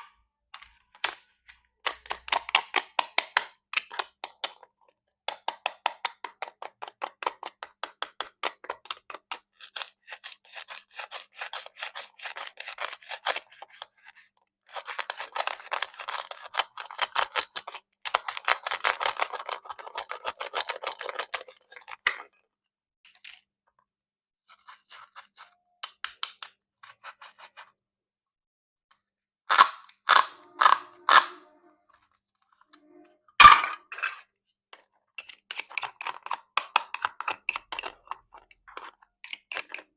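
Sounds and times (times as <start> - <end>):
plastic toy clicking and crackling: 0.6 - 4.7, 14.7 - 22.3, 29.5 - 31.3, 35.2 - 39.9.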